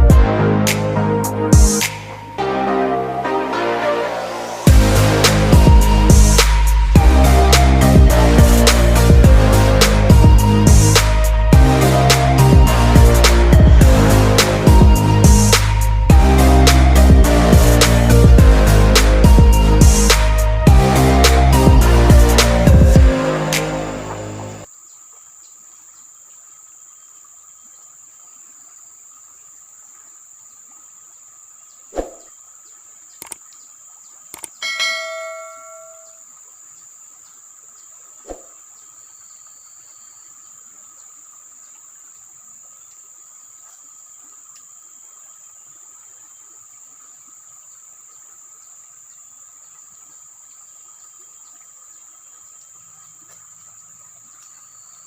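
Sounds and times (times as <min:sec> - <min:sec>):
insects chirring: 0:24.6 - 0:55.0
sharp clicks: 0:33.2 - 0:33.4, 0:34.3 - 0:34.6
ringing bell-like tone: 0:34.6 - 0:36.2.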